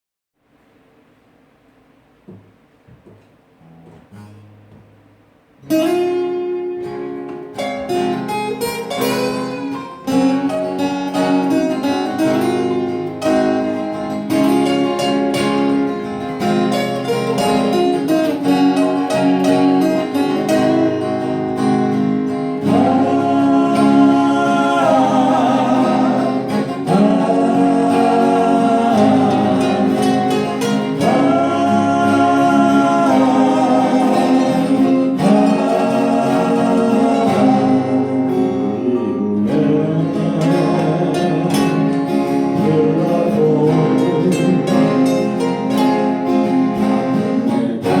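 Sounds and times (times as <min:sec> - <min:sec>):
acoustic guitar chords: 0:00.4 - 0:48.0
person singing: 0:22.6 - 0:45.8.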